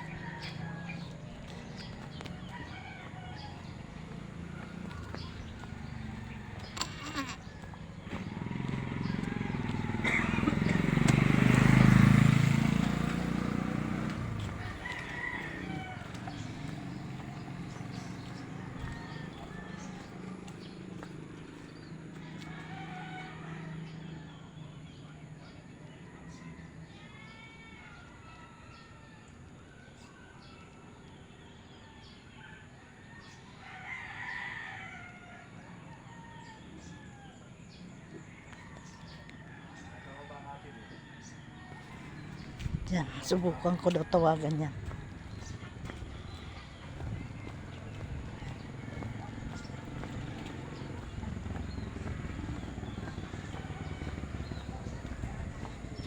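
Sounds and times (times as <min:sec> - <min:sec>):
rooster crowing: 0:00.0 - 0:10.1, 0:14.2 - 0:20.6, 0:22.2 - 0:24.4, 0:33.0 - 0:42.3, 0:46.3 - 0:56.0
vehicle engine passing: 0:00.0 - 0:26.3, 0:37.7 - 0:56.0.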